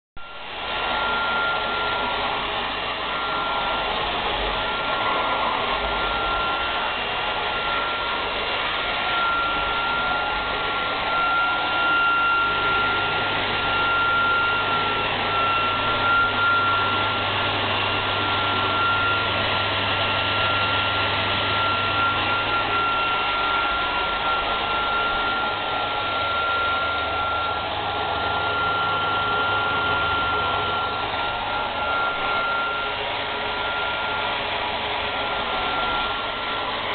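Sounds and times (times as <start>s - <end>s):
vacuum cleaner running: 0.2s - 36.9s.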